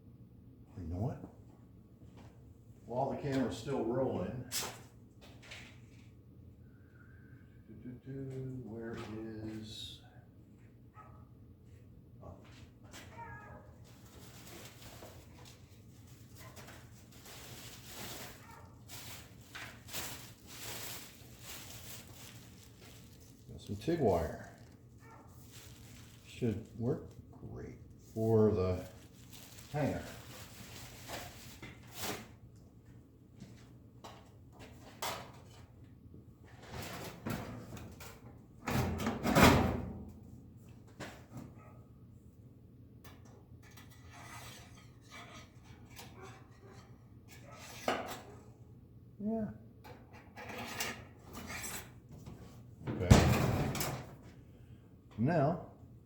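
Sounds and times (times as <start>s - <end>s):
rustling and handling noises: 10.5s - 35.7s
low steady hum: 13.5s - 33.3s
scrapes: 13.9s - 27.2s, 28.0s - 32.3s.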